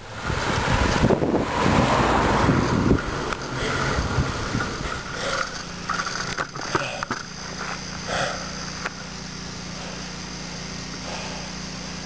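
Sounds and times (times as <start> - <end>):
low hum of riding noise: 0.0 - 12.0
person breathing hard: 3.5 - 4.1, 4.8 - 5.6, 8.0 - 8.6, 11.0 - 11.6.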